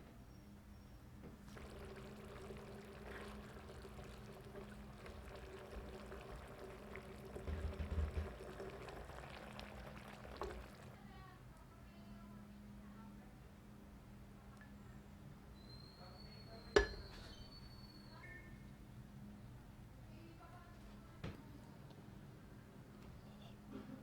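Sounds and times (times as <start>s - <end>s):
liquid pouring: 1.4s - 11.1s.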